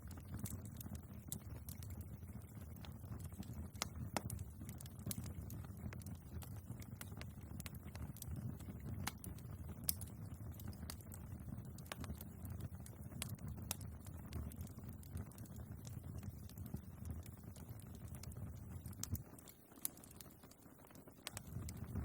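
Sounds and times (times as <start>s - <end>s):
logs crackling and popping: 0.0s - 22.0s
low rumble of flames: 0.0s - 22.0s.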